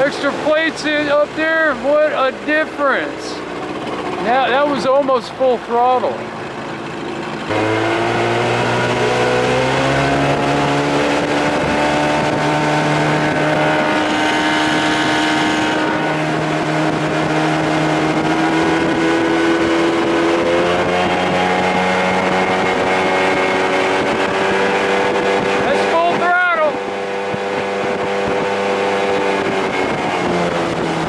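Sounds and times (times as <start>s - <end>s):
outboard motor running: 0.0s - 31.0s.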